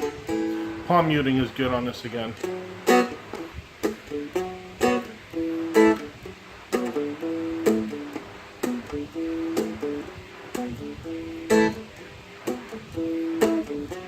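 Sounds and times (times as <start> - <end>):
strumstick picked and strummed: 0.0 - 14.0.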